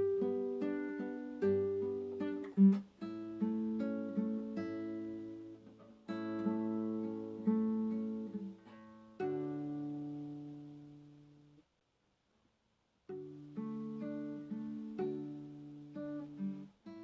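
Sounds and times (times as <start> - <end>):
acoustic guitar plucked chords: 0.0 - 11.5.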